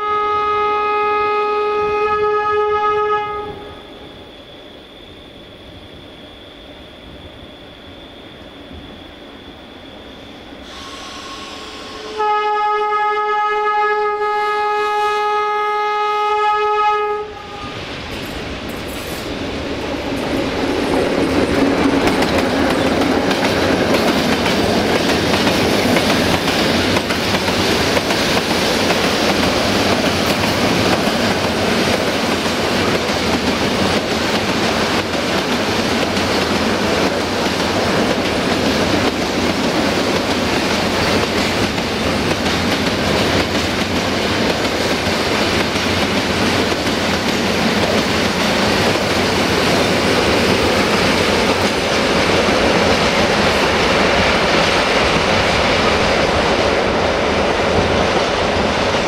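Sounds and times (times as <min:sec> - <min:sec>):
locomotive horn blast: 0:00.0 - 0:03.8, 0:10.7 - 0:17.9
train wheels clicking over rails: 0:17.9 - 0:59.0.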